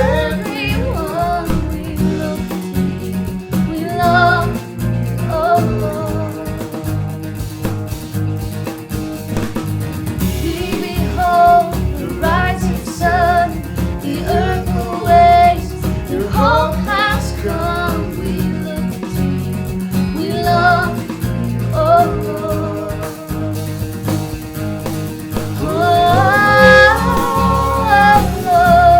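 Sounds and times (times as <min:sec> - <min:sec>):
person singing melody: 0:00.0 - 0:02.6, 0:10.2 - 0:19.4, 0:25.4 - 0:28.9
band playing slow song with guitar: 0:00.0 - 0:28.9.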